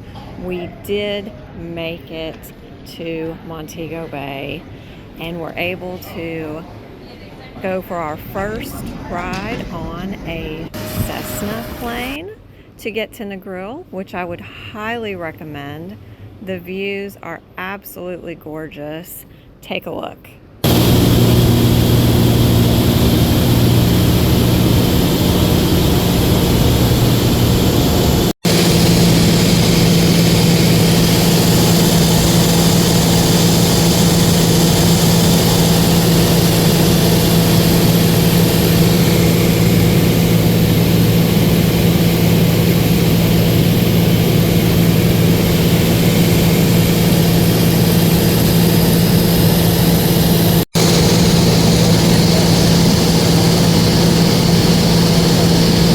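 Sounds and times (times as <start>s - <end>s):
aircraft engine and propeller: 20.6s - 55.9s.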